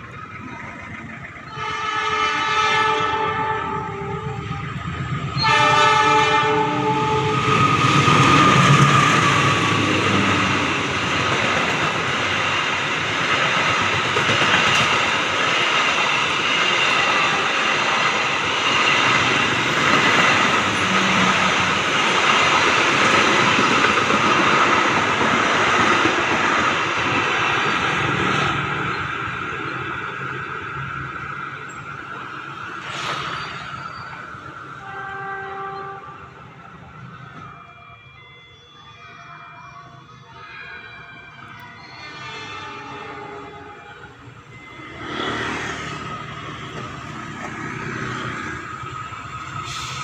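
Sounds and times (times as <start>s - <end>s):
train wheels rumbling on rails: 0.0s - 37.9s, 41.4s - 50.0s
locomotive air horn: 1.5s - 10.6s, 20.4s - 21.8s, 34.7s - 36.6s, 37.3s - 45.7s, 49.6s - 50.0s.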